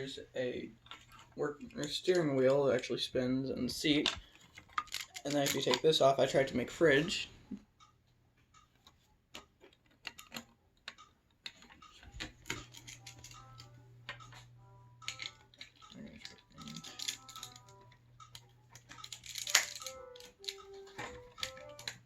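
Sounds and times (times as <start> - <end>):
plastic bricks clicking and clattering: 3.8 - 6.0, 9.3 - 14.3, 15.0 - 22.0.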